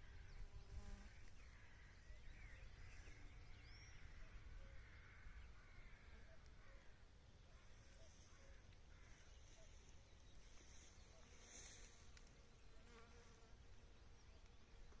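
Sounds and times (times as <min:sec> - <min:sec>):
faint insect buzz: 0:00.0 - 0:02.0, 0:04.7 - 0:13.9.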